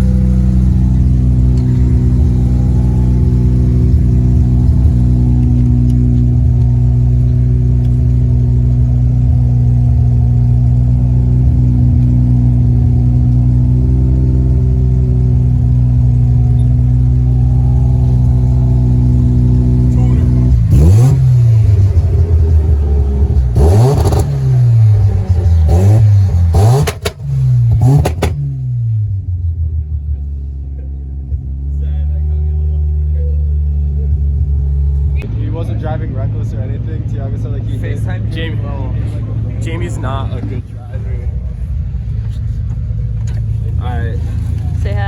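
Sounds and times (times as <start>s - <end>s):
loud engine bursts: 0.0s - 28.4s
car engine revving: 0.0s - 45.0s.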